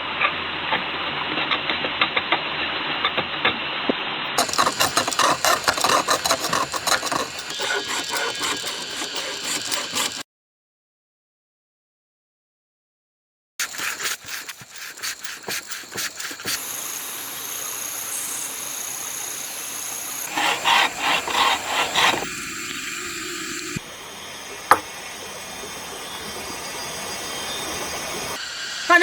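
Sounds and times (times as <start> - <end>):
hand tool strokes on wood: 4.4 - 10.2, 13.6 - 18.6, 19.4 - 22.4
steady hiss: 13.6 - 29.0.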